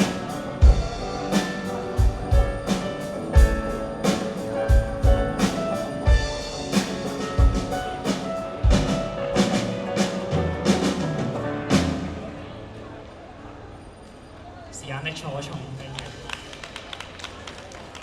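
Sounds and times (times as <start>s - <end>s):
kick drum and cymbal hits: 0.0s - 9.1s
live band playing pop-rock: 0.0s - 12.5s.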